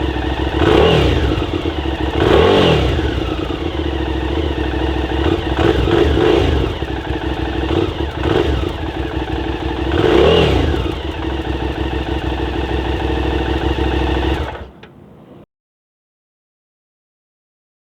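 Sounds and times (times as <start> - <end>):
motorcycle engine revving: 0.0 - 15.4.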